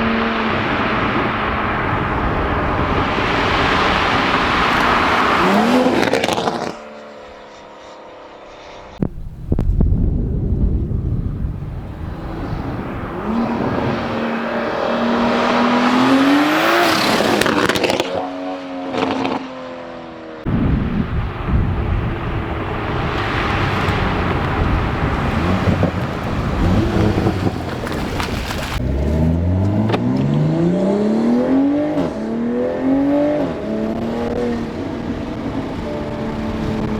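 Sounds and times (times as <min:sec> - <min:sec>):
loud rushing noise: 0:00.0 - 0:06.7, 0:20.5 - 0:29.1
car engine accelerating hard: 0:00.0 - 0:09.1, 0:11.2 - 0:19.5, 0:20.5 - 0:36.9.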